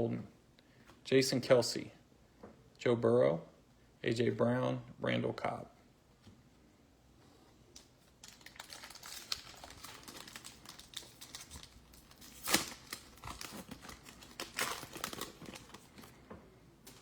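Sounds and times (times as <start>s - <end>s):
wrapper crinkling: 7.8s - 16.2s, 16.8s - 17.0s
wrapper ripping: 8.0s - 16.2s.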